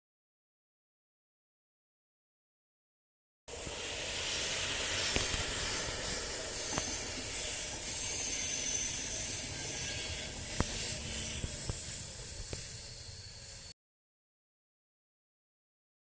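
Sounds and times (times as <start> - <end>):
train wheels rushing on rail: 3.5 - 13.7
faint high whistle: 3.5 - 13.8.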